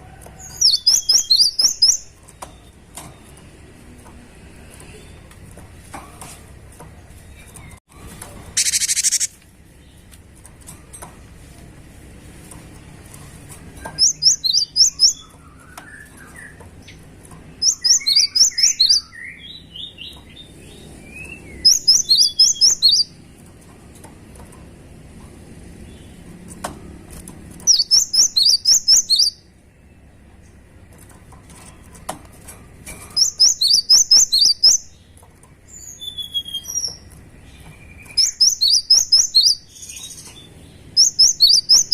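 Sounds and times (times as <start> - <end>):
bird singing rapid high notes: 0.6 - 2.8, 8.6 - 9.4, 14.0 - 17.0, 17.6 - 23.2, 27.7 - 29.5, 33.2 - 35.0, 37.7 - 41.9.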